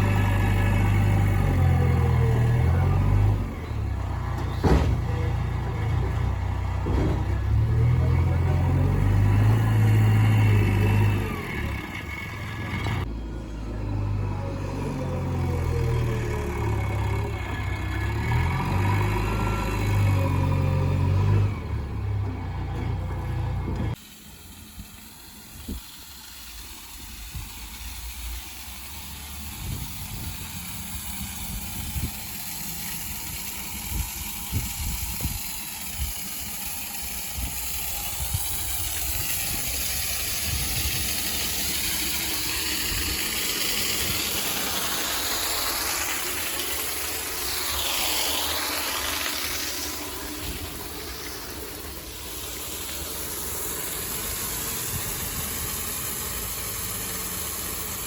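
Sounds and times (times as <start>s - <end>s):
heavy vehicle engine running: 0.0s - 58.0s
steady hiss: 23.9s - 58.0s.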